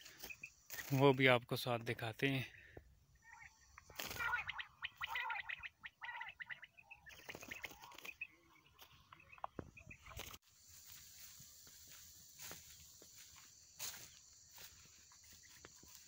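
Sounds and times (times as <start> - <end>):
small birds chirping: 0.0 - 16.0
faint outdoor hiss: 10.1 - 16.0.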